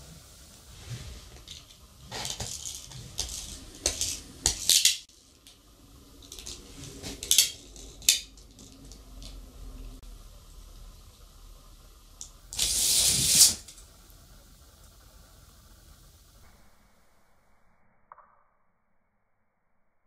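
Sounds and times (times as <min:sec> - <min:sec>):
small hard objects clinking: 0:01.4 - 0:05.6.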